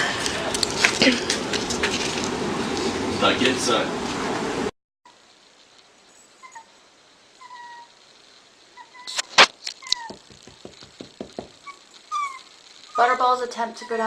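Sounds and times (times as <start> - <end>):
young pet crying: 7.4 - 8.0, 9.8 - 10.2, 11.6 - 13.1
sharp clicks: 9.1 - 10.7.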